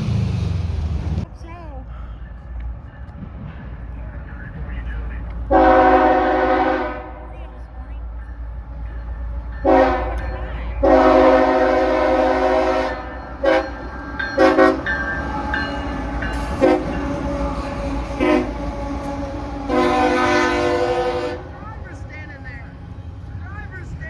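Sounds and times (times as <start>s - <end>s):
moving train rumble: 0.0s - 24.0s
locomotive air horn blasts: 5.5s - 7.3s, 9.6s - 14.9s, 16.5s - 21.6s.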